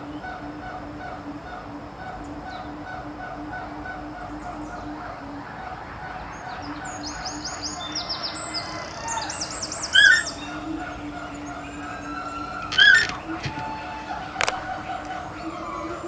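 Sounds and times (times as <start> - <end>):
steady low hum: 0.0 - 16.0
high bird chirps: 6.3 - 16.0.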